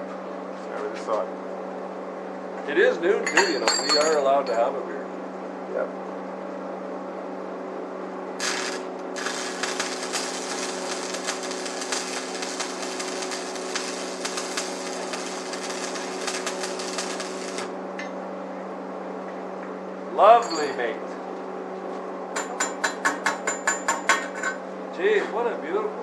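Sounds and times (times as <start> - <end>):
low hum: 8.4 - 17.8
welding arc crackling: 8.4 - 17.8.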